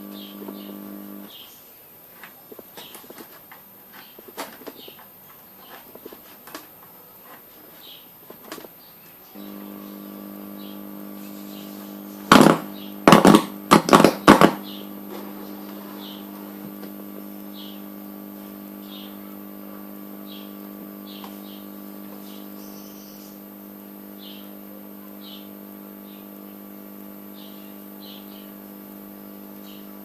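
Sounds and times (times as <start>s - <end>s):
electrical hum: 0.0s - 1.6s, 2.2s - 30.0s
loud knocks: 12.3s - 14.6s.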